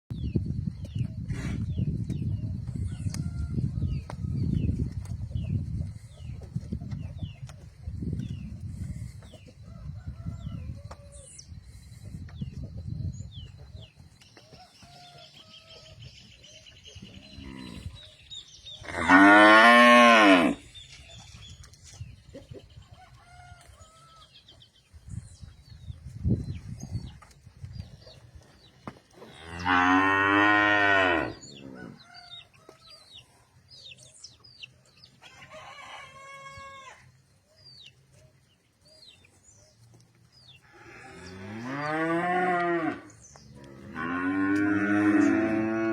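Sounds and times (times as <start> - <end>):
cow mooing: 18.9 - 20.6, 29.4 - 32.0, 40.7 - 45.9.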